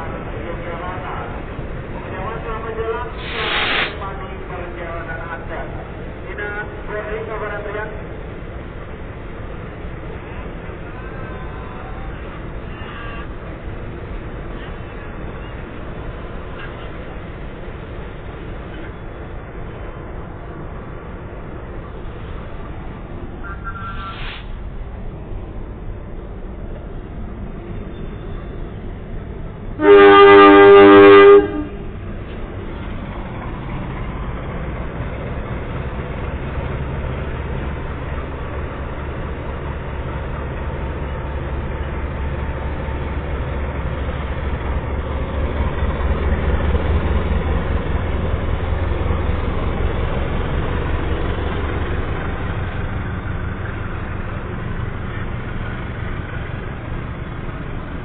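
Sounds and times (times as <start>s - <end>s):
low rumble of train: 0.0s - 58.0s
locomotive horn blast: 12.7s - 13.4s, 29.8s - 31.9s.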